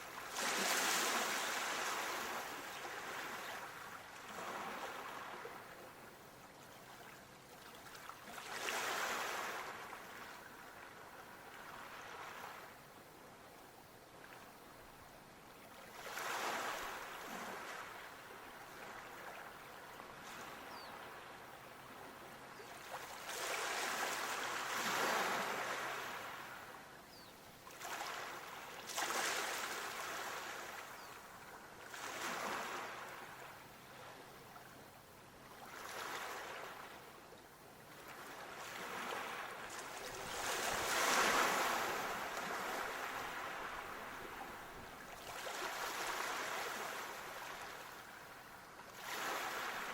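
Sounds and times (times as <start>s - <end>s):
waves washing in: 0.0s - 5.7s, 22.9s - 26.7s, 27.7s - 31.0s, 38.1s - 48.0s, 49.0s - 49.9s.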